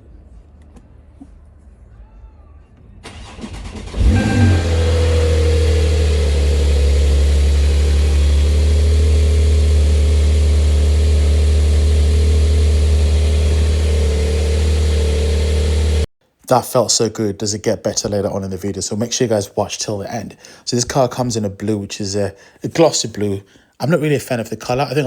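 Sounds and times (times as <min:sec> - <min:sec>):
engine starter cranking: 0:03.0 - 0:16.1
car engine revving and idling: 0:03.6 - 0:16.1.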